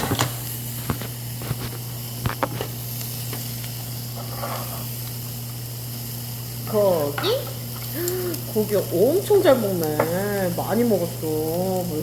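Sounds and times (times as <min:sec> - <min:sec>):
meat sizzling on a grill: 0:00.0 - 0:12.0.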